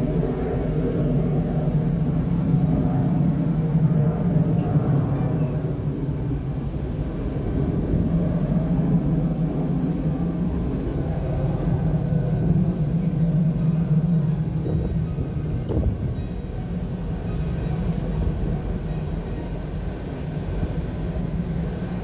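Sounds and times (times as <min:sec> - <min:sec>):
jet engine rumble: 0:00.0 - 0:22.0.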